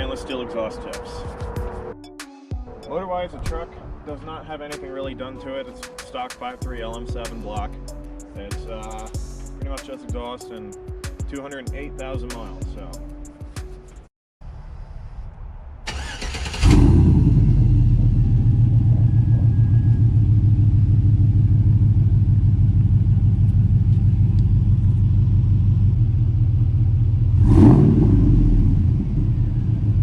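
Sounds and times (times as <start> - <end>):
engine cranking: 15.9 - 17.1
deep loud engine idle: 16.8 - 30.0.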